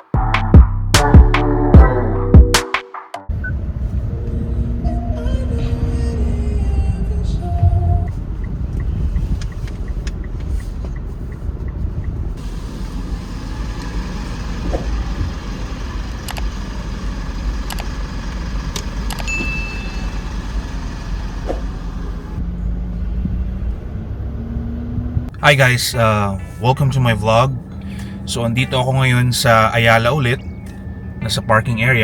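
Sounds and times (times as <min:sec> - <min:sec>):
low rumble of car traffic: 0:03.3 - 0:32.0
light ticks: 0:08.1 - 0:12.2
scattered clicks: 0:16.2 - 0:16.5, 0:17.6 - 0:18.0, 0:18.7 - 0:19.3
short high beep: 0:19.2 - 0:20.2.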